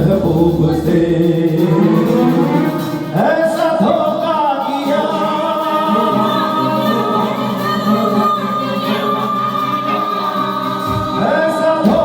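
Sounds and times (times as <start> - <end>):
layered musical backing: 0.0 - 12.0.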